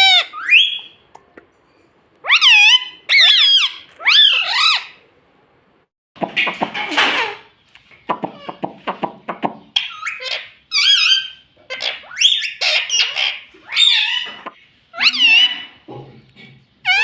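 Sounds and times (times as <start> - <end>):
parrot chattering: 0.0 - 0.9, 2.2 - 5.0, 9.8 - 15.8
parrot whistles and squawks: 0.0 - 1.0, 2.2 - 5.0, 9.8 - 15.8.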